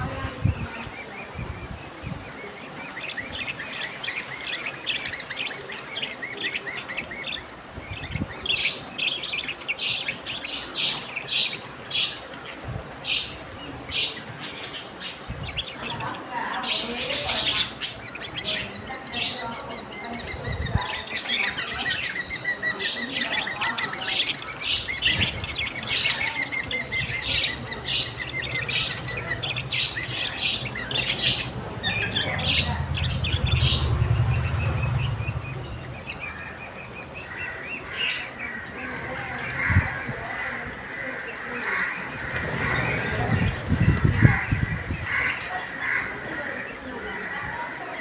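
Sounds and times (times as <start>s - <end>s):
small parrots chirping: 14.4s - 38.5s
low rumble: 27.0s - 37.9s.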